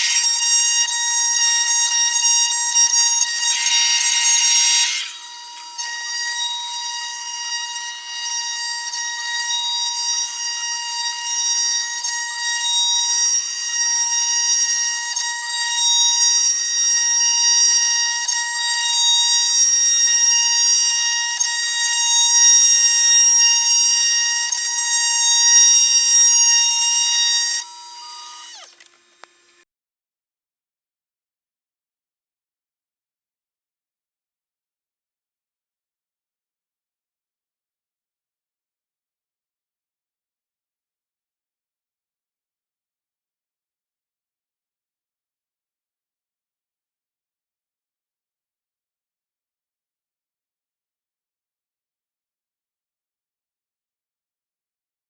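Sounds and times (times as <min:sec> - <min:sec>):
router spindle whine cutting wood: 0:00.0 - 0:29.6.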